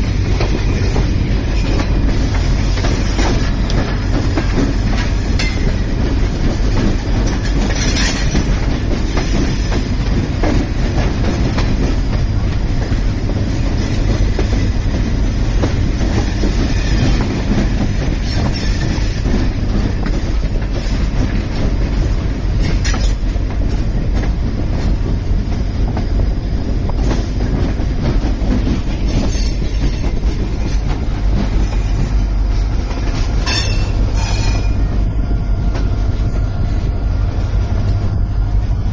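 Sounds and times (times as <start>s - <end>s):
train wheels rumbling: 0.0s - 38.9s
metallic clanks and squeaks: 33.4s - 34.8s.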